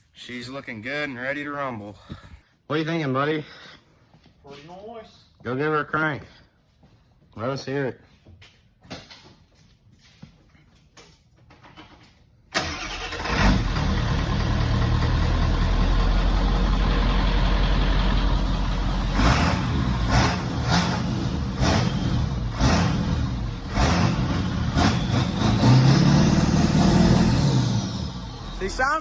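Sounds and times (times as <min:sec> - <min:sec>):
diesel engine cranking and starting: 0:12.5 - 0:29.0
diesel engine running loudly: 0:13.6 - 0:28.7.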